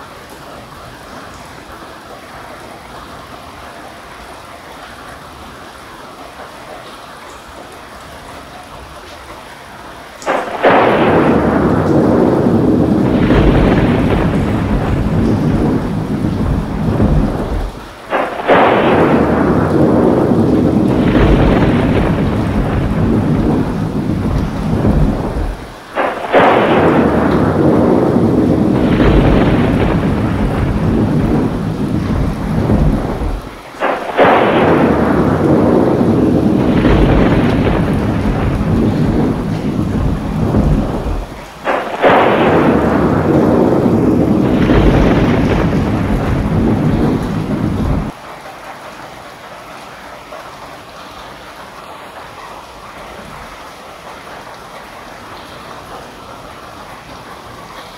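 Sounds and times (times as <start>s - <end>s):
rain falling: 0.0s - 57.9s
thunder claps rolling: 10.2s - 48.2s.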